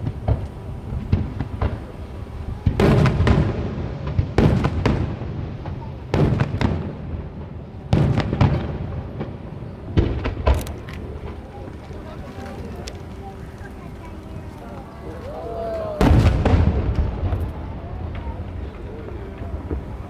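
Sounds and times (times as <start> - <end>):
firework booms: 0.0 - 20.0
firework cracks: 8.0 - 20.0.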